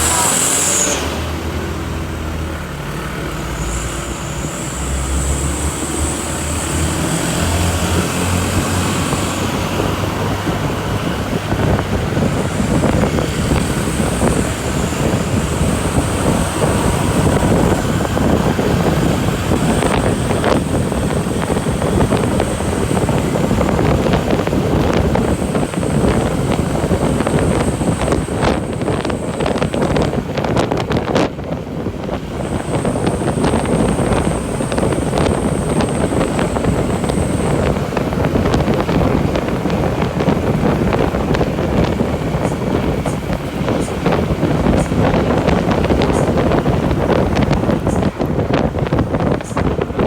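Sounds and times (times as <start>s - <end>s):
thin high whine: 0.0s - 1.8s, 3.3s - 31.3s, 32.0s - 48.2s
road and wind noise: 0.0s - 50.0s
truck engine drone: 0.0s - 50.0s.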